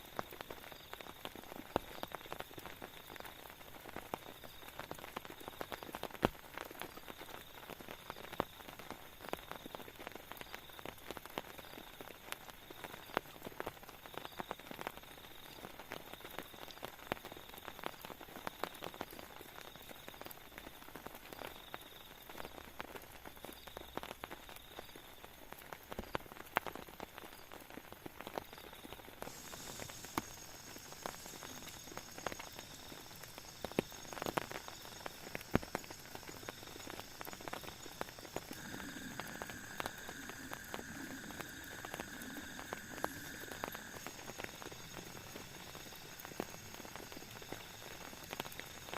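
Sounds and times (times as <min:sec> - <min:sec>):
raindrops striking: 0:25.5 - 0:48.9.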